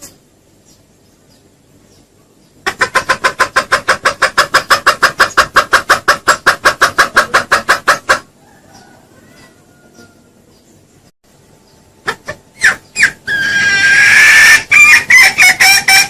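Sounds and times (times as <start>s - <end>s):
junglefowl clucking: 2.6s - 10.5s, 12.0s - 16.0s.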